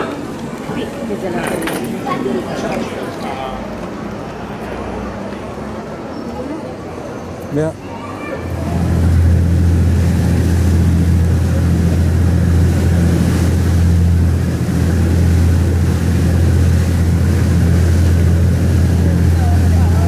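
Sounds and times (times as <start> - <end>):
boat engine droning: 6.7 - 20.0
rushing water: 7.8 - 20.0.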